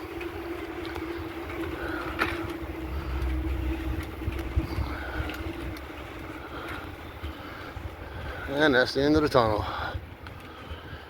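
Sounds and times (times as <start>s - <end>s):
bicycle tyres rumbling: 0.0s - 11.0s
steady hum: 0.0s - 11.0s
wind on microphone: 2.9s - 7.0s.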